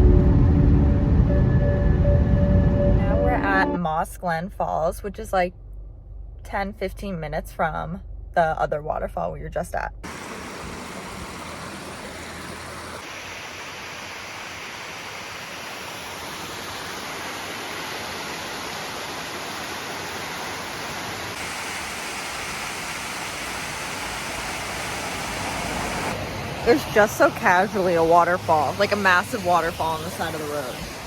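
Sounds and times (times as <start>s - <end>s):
waterfall rushing: 10.0s - 31.0s.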